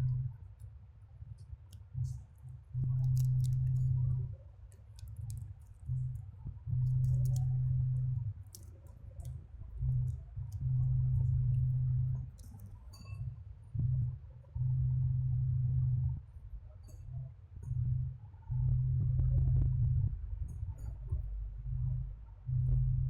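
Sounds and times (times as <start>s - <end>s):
low steady hum: 0.0s - 23.0s
small clicks and taps: 2.8s - 4.0s, 4.7s - 7.8s, 8.5s - 10.8s, 12.2s - 13.2s.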